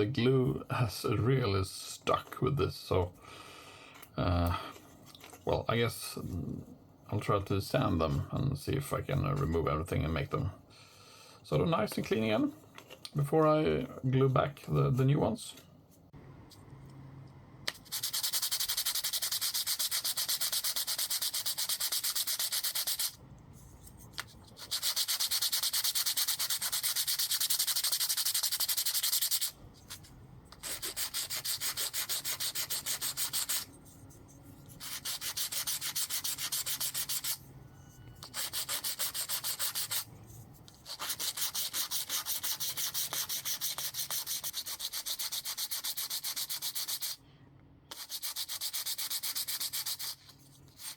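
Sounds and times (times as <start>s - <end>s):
sandpaper rubbing on wood: 17.8s - 23.2s, 24.5s - 29.5s, 30.6s - 33.7s, 34.7s - 37.4s, 38.3s - 40.1s, 40.8s - 47.2s, 47.9s - 50.9s.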